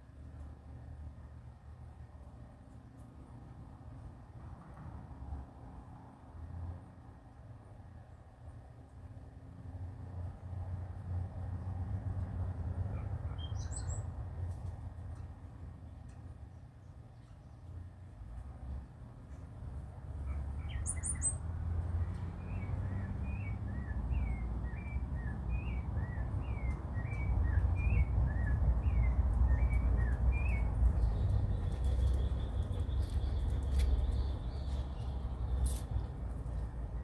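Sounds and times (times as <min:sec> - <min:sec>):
small birds chirping: 0:13.3 - 0:14.1, 0:20.2 - 0:37.0.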